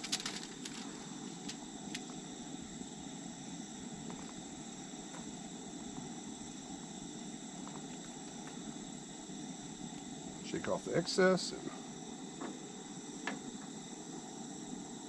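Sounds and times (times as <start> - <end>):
insect drone: 0.0 - 15.0.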